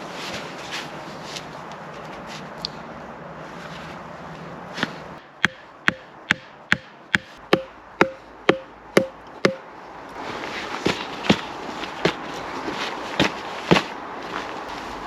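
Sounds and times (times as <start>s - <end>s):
tool striking wood: 5.4s - 9.6s.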